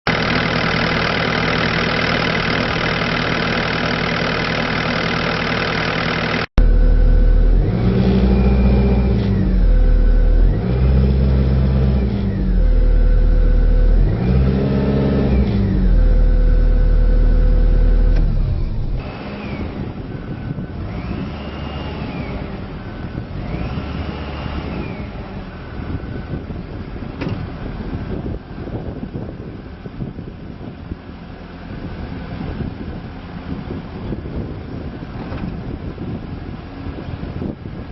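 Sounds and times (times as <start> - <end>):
diesel engine revving: 0.1 - 28.6
high engine whine: 0.1 - 37.9.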